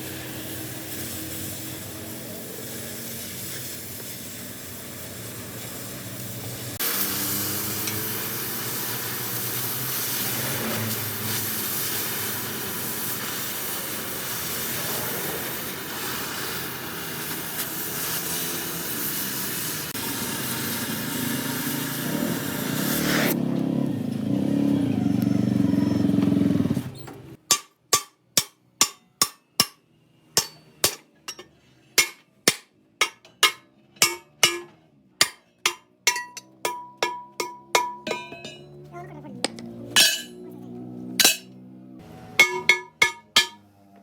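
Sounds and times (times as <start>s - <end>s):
loud steady hiss: 0.0s - 23.4s
hammer ringing on steel rim: 33.0s - 38.7s, 40.0s - 40.4s, 42.4s - 43.6s.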